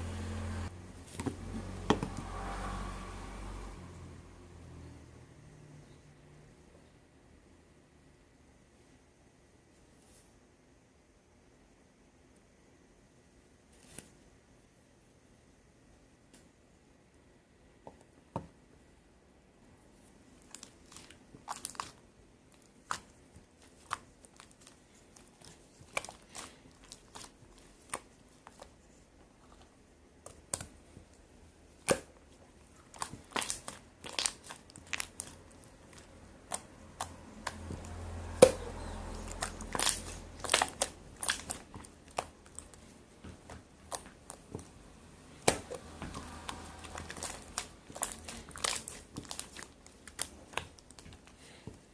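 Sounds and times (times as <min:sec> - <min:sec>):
slime squished by hand: 0:20.4 - 0:28.8, 0:30.2 - 0:51.9.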